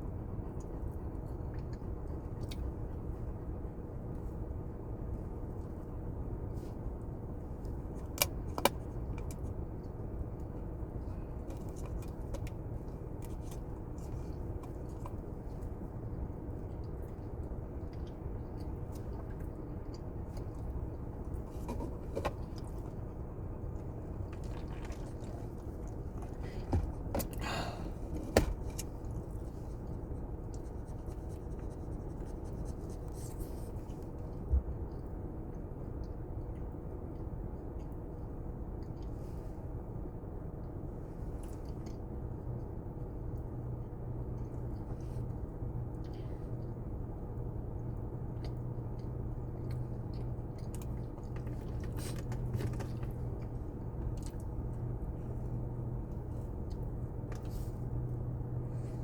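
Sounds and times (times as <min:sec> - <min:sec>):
low background hum: 0:00.0 - 0:59.0
low background rumble: 0:00.0 - 0:59.0
chewing and mouth clicks: 0:00.5 - 0:03.1, 0:07.6 - 0:27.4, 0:40.4 - 0:59.0.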